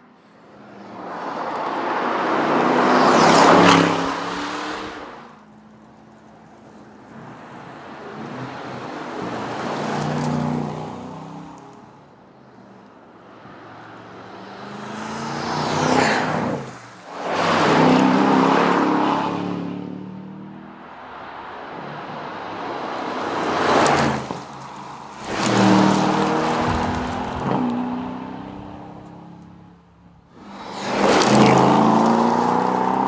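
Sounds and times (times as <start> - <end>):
car accelerating past: 1.9 - 5.3, 14.1 - 29.6, 30.4 - 33.0.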